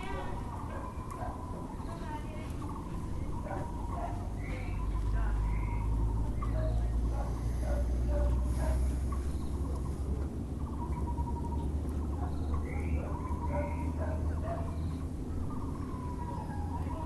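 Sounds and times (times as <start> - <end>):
barbet pulsed calls: 0.0 - 17.0
low background rumble: 0.0 - 17.0.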